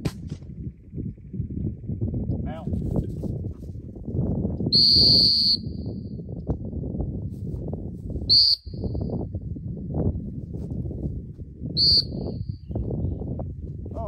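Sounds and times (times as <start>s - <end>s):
whistle blasts: 4.7s - 6.1s, 8.3s - 9.1s, 11.8s - 12.6s.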